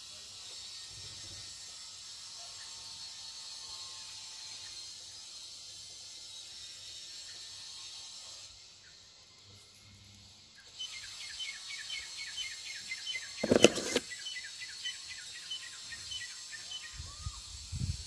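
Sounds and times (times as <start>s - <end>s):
phone handling rustle: 13.4s - 14.0s.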